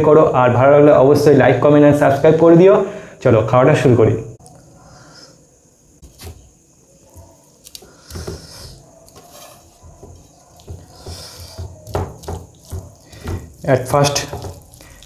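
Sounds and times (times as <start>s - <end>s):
dishes tapping and clicking: 10.0s - 14.7s.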